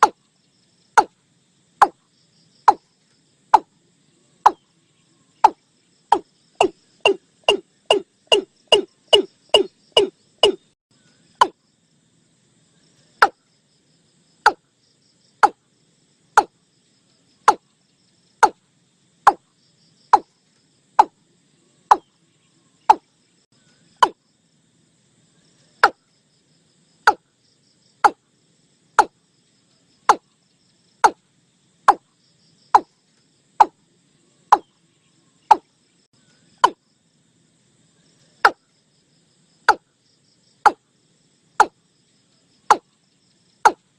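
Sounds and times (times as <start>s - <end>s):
bird call with falling notes: 5.4s - 11.6s.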